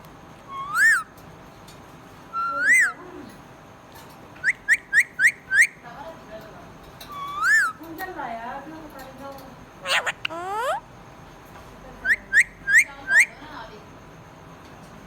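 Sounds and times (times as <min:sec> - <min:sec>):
parrot whistling: 0:00.5 - 0:01.1, 0:02.4 - 0:03.0, 0:04.4 - 0:05.8, 0:07.2 - 0:07.8, 0:09.8 - 0:10.8
parrot short upward chirps: 0:09.9 - 0:10.8.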